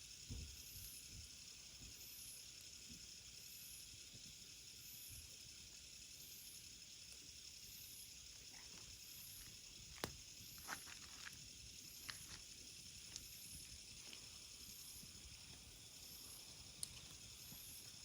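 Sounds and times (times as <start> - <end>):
faint steady hiss: 0.0 - 18.0
wood fire crackling: 8.3 - 18.0
burning wood popping: 8.4 - 18.0.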